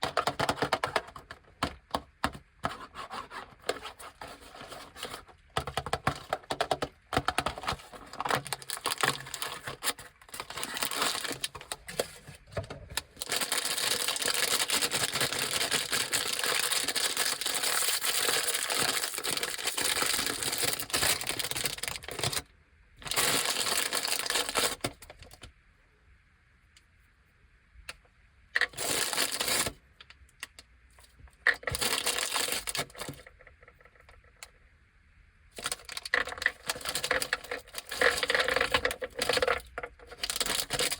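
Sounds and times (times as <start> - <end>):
plastic snack packaging crinkling: 3.6 - 25.5, 28.6 - 29.8, 31.5 - 33.3, 35.6 - 40.9.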